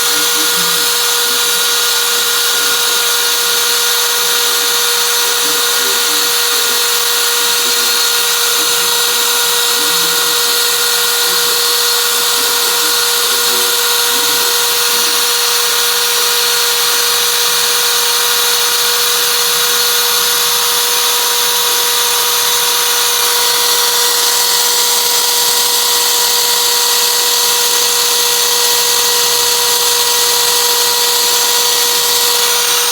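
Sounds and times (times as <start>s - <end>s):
hiss: 0.0s - 23.1s
router spindle whine: 0.0s - 32.9s.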